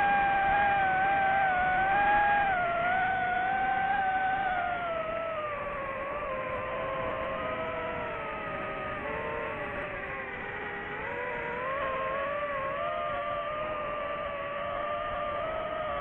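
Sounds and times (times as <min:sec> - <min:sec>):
drone propeller motors whining: 0:00.0 - 0:16.0.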